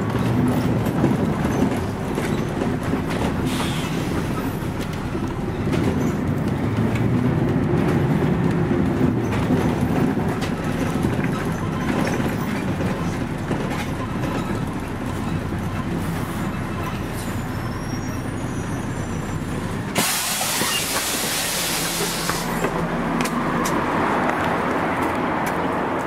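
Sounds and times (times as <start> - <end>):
bodywork clicks and rattles: 0.0 - 3.5, 4.2 - 17.4
bus diesel engine drone: 0.0 - 26.0.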